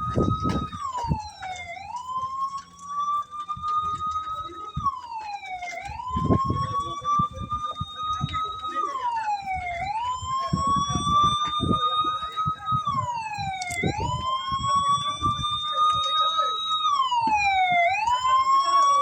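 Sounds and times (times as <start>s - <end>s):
emergency siren wailing: 0.0s - 19.0s.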